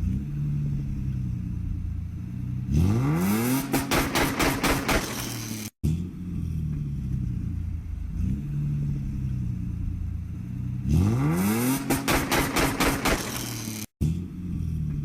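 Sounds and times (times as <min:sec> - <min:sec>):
car engine idling: 0:00.0 - 0:02.7, 0:06.2 - 0:10.8
car engine revving: 0:00.0 - 0:15.0.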